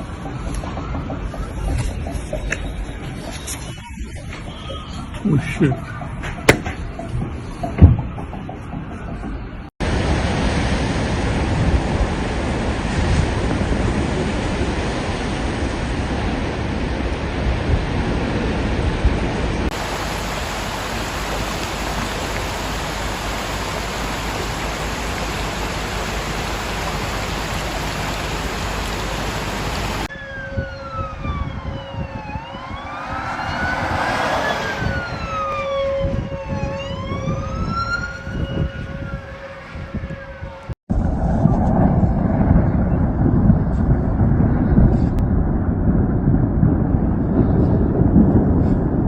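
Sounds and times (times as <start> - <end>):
emergency sirens wailing: 0.0 - 9.7, 19.7 - 40.8
loud rushing noise: 19.7 - 30.1, 32.4 - 35.7
steady tone: 32.2 - 35.8.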